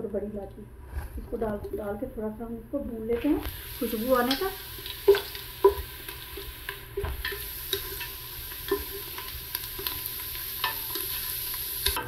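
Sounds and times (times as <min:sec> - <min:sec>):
onions sizzling in hot oil: 0:03.2 - 0:12.0.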